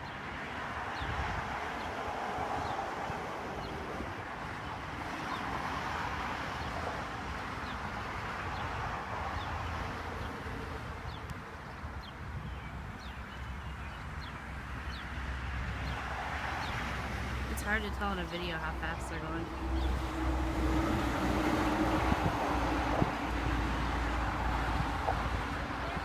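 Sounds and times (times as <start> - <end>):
wind rushing: 18.4 - 26.0.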